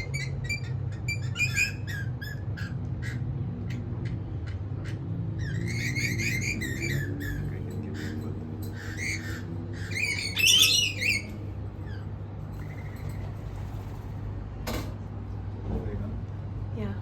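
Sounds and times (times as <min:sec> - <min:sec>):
lorikeets squawking: 0:00.0 - 0:13.2
steady low hum: 0:00.0 - 0:17.0.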